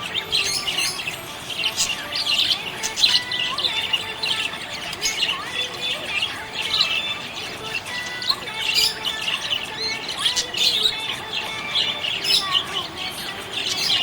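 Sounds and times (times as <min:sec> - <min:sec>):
budgerigars chirping: 0:00.0 - 0:14.0
whistled bird notes: 0:00.0 - 0:14.0.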